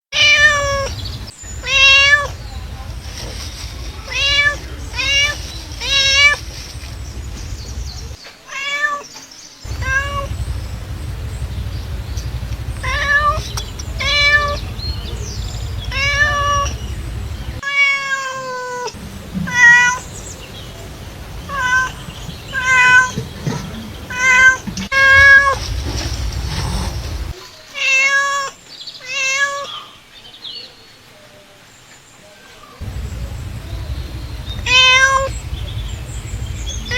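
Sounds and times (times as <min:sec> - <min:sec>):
cat meowing: 0:00.1 - 0:02.4, 0:03.4 - 0:06.5, 0:08.5 - 0:09.0, 0:09.7 - 0:10.4, 0:12.6 - 0:16.8, 0:17.5 - 0:20.2, 0:21.5 - 0:25.6, 0:26.5 - 0:29.9, 0:34.4 - 0:35.8
low steady hum: 0:09.6 - 0:17.6, 0:19.0 - 0:27.3, 0:32.8 - 0:36.9.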